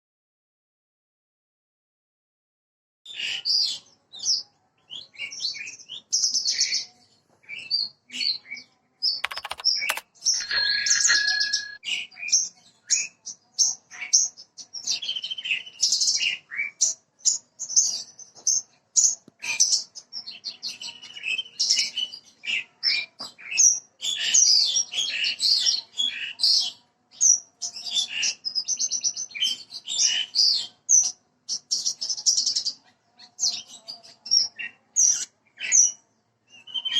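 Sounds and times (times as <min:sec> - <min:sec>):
sharp clicks: 0:09.2 - 0:11.8.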